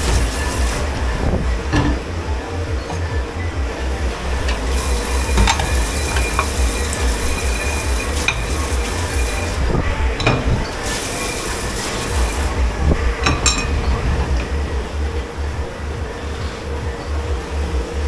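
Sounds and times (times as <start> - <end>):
dishwasher hiss: 0.0 - 2.2, 3.8 - 14.4
low machine hum: 0.0 - 18.0
crockery and metal clinks: 4.4 - 12.3, 13.2 - 14.6.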